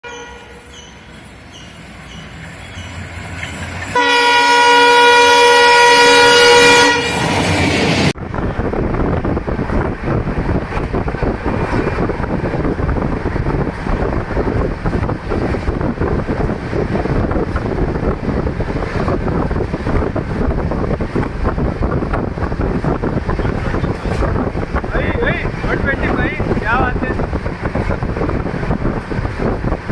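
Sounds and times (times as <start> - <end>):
locomotive horn: 0.0 - 0.8, 3.9 - 7.4
express train rushing and rattling: 0.0 - 29.9.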